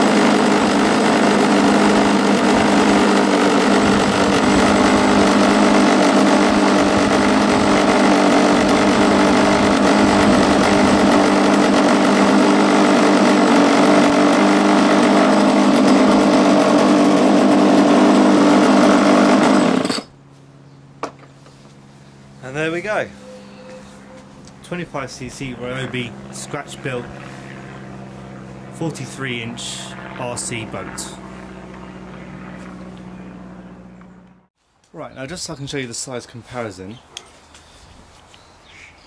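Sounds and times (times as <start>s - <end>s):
small engine running: 0.0s - 20.2s, 21.5s - 34.5s.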